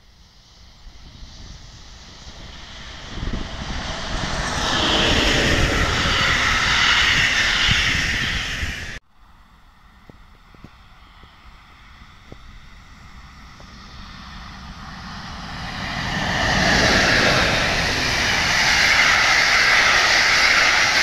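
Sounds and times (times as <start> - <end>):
train wheels rumbling on rail: 12.2 - 21.0.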